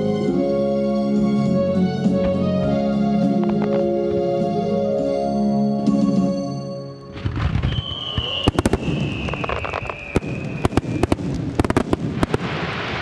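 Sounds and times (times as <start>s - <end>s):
firework whistle: 7.0s - 13.0s
fireworks bursts banging: 7.1s - 13.0s.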